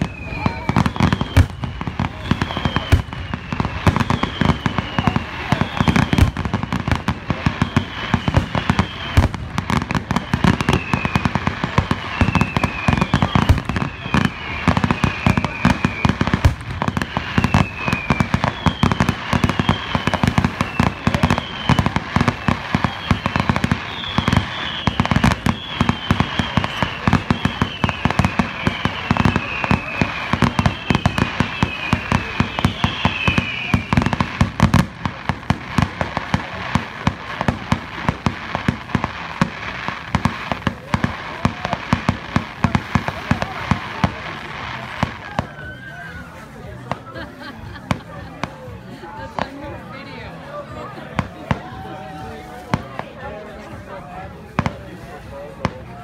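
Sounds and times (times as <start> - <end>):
falling firework whistles: 0.0 - 48.6
fireworks bangs and crackles: 0.0 - 56.0.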